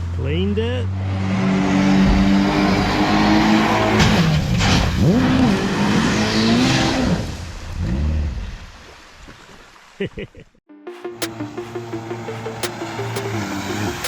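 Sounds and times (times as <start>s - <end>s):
engine revving hard: 0.8s - 8.2s.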